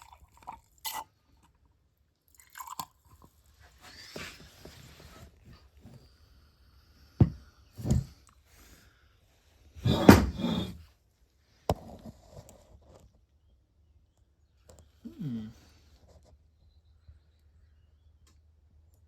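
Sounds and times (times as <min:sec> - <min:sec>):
tools knocking on workbench: 0:09.9 - 0:10.8.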